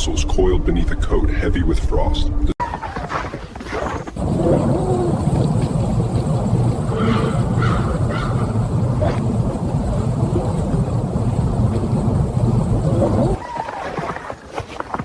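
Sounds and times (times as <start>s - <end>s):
blizzard wind rumbling: 3.8s - 14.5s.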